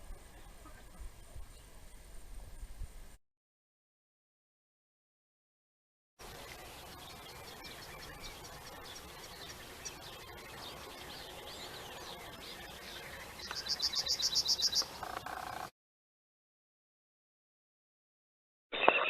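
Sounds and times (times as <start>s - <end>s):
small birds chirping: 6.2s - 15.7s
rapid bird trill: 6.3s - 15.7s.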